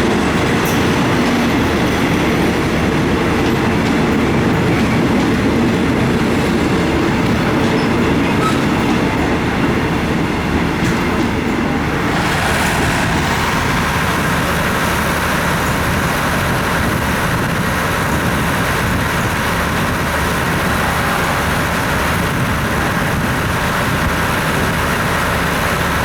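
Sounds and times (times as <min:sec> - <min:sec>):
engine humming: 0:11.9 - 0:17.0.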